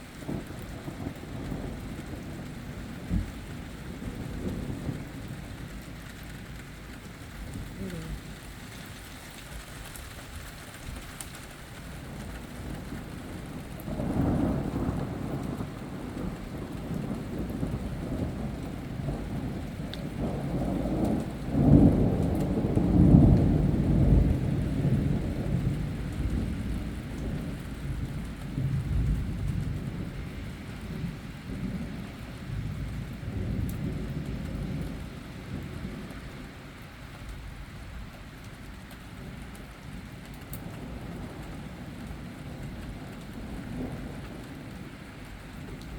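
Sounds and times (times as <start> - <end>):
thunder rumbling: 0.0 - 8.6, 12.0 - 36.6
steady rain: 0.0 - 45.9.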